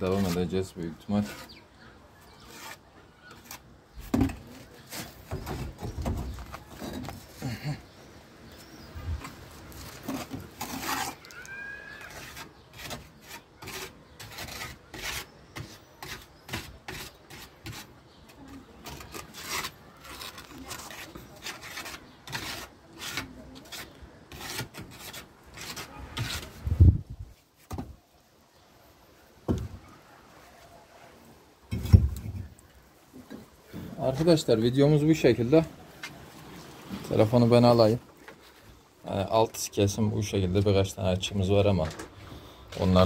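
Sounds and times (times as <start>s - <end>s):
rough scraping strokes: 0.0s - 1.6s, 2.2s - 7.7s, 9.1s - 27.7s.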